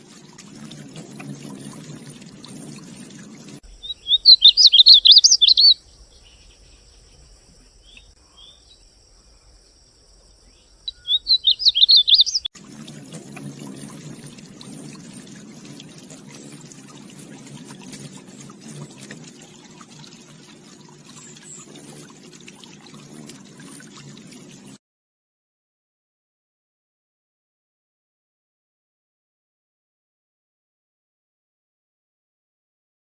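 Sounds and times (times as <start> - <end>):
bird warbling: 0.3 - 5.8, 10.9 - 24.7.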